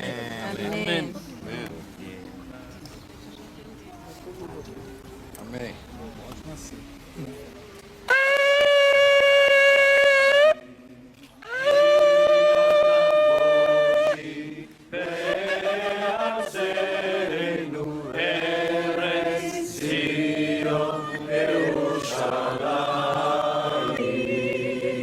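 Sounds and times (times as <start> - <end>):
ram's horn blast: 8.1 - 10.9
voices chanting together: 11.7 - 25.0.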